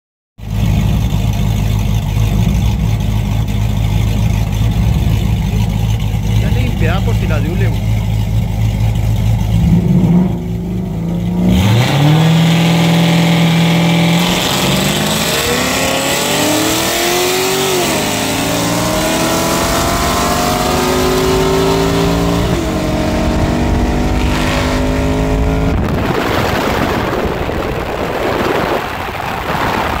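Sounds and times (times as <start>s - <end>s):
road noise: 0.4s - 30.0s
car engines accelerating hard: 0.5s - 30.0s
wind noise: 18.5s - 30.0s.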